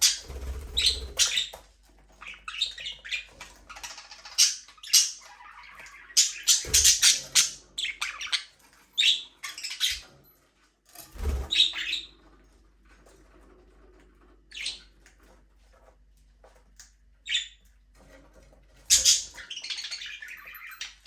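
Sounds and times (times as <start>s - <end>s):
budgerigars chirping and squawking: 0.0s - 10.1s, 11.2s - 12.2s, 14.4s - 15.0s, 17.2s - 17.7s, 18.7s - 21.0s.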